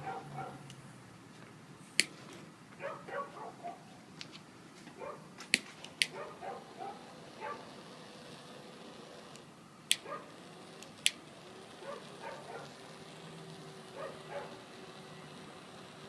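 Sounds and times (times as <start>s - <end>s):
sharp clicks: 2.0s - 2.2s, 5.4s - 6.2s, 9.3s - 10.1s, 10.8s - 11.2s.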